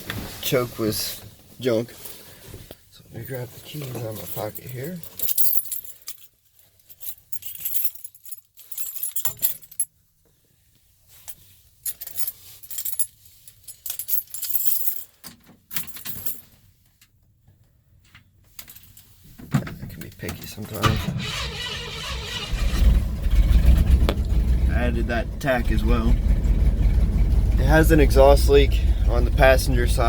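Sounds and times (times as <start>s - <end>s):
keys jangling: 3.8s - 9.9s, 11.9s - 16.4s.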